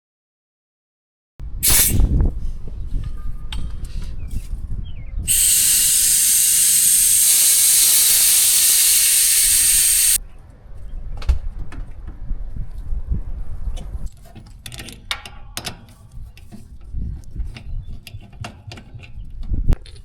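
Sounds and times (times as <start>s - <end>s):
pressurised gas hissing: 1.6s - 2.0s, 5.3s - 10.2s.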